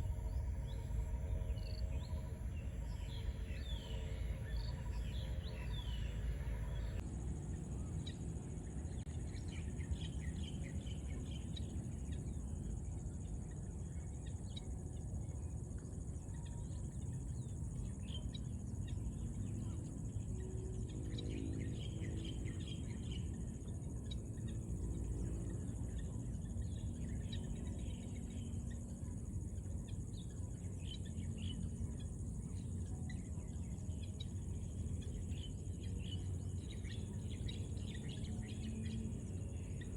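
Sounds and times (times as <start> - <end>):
low rumble: 0.0 - 7.0
high insect drone: 0.0 - 39.9.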